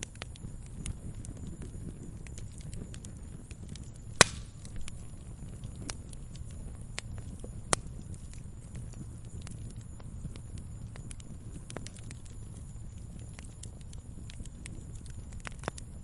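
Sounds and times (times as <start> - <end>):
sharp pop of burning wood: 0.0 - 6.0
low rumble of fire: 0.0 - 16.0
wood fire crackling: 0.0 - 16.0.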